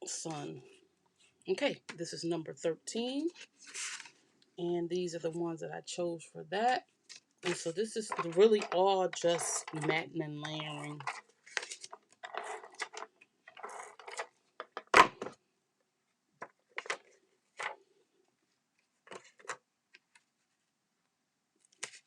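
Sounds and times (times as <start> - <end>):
paper rustling: 3.4 - 4.2, 10.7 - 14.4, 21.7 - 22.0.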